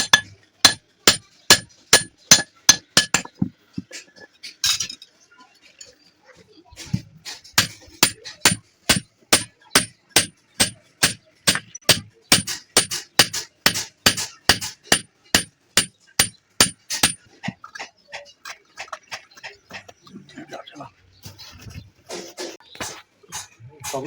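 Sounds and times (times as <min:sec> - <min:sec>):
hammer striking metal: 0:00.0 - 0:03.4, 0:07.6 - 0:17.2.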